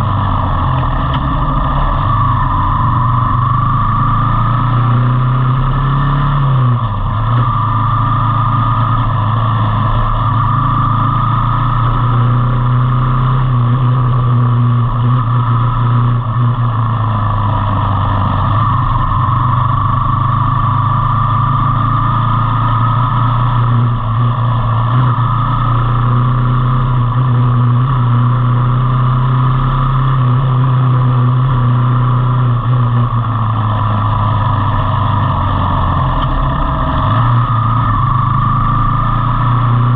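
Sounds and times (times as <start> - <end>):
faint rising and falling whine: 0.0 - 39.9
motorcycle engine running: 0.0 - 39.9.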